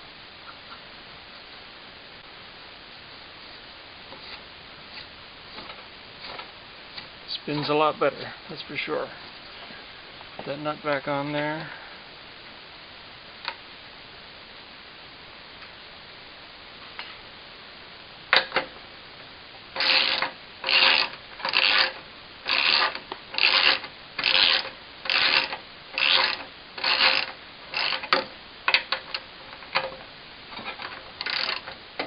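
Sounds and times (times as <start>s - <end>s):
ratchet wrench ratcheting: 19.8s - 29.9s, 30.7s - 31.7s.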